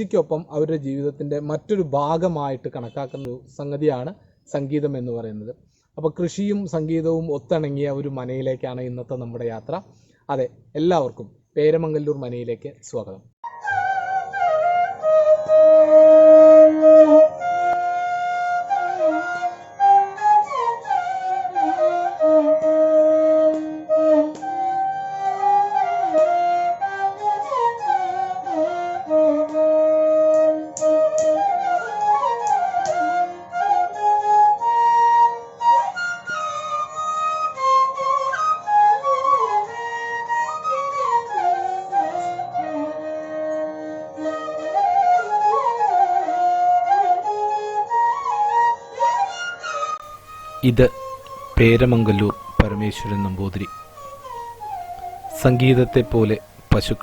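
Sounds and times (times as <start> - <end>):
flute melody: 13.4 - 57.0.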